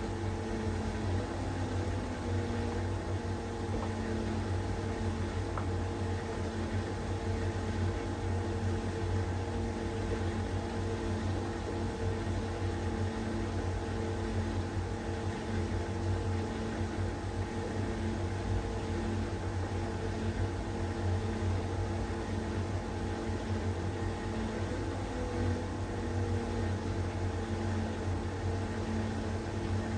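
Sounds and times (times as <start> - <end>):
dryer humming: 21.7 - 29.9.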